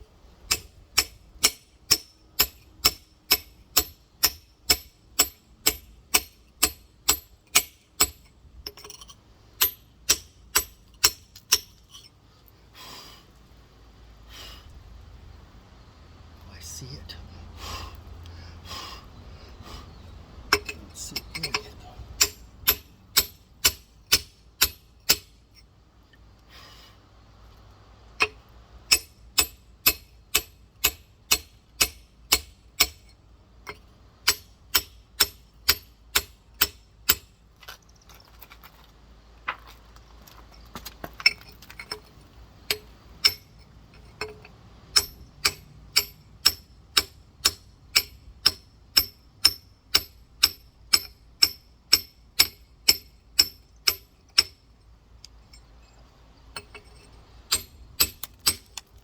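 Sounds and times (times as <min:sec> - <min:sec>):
hammer clinking on rock: 0:00.5 - 0:12.2, 0:20.5 - 0:25.4, 0:41.1 - 0:59.0.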